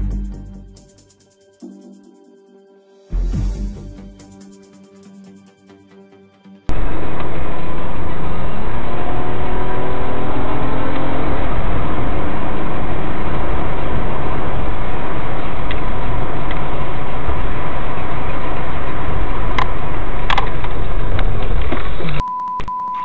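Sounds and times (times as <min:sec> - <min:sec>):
vehicle engine and road noise: 0:06.7 - 0:22.2.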